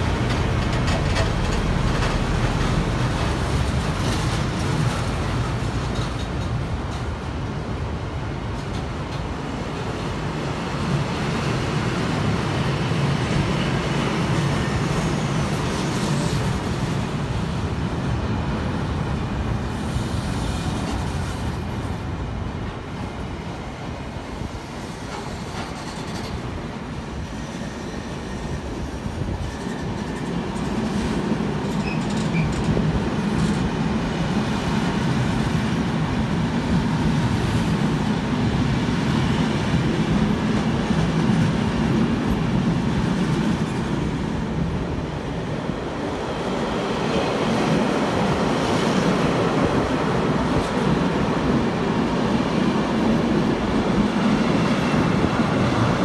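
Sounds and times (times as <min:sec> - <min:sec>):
freight wagons rumbling on track: 0:00.0 - 0:09.5.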